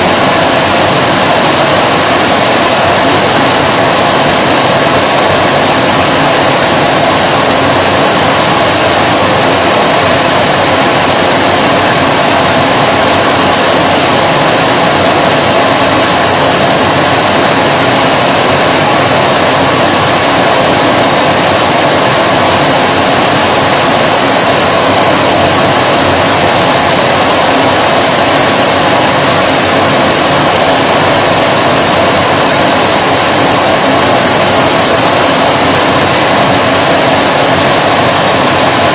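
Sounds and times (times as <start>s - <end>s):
vacuum cleaner motor running: 0.0s - 38.9s.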